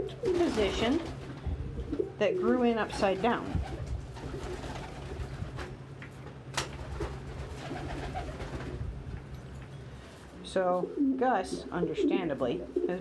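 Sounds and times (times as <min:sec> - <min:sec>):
pigeons cooing: 0:00.0 - 0:05.4, 0:07.1 - 0:08.5, 0:10.8 - 0:13.0.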